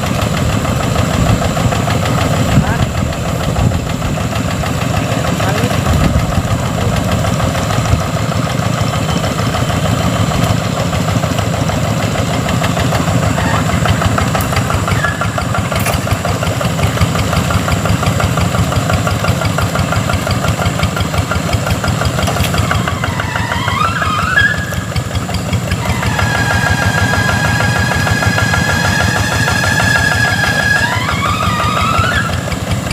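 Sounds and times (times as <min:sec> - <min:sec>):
tractor engine chugging: 0:00.0 - 0:32.9
steady high tone: 0:22.6 - 0:32.4.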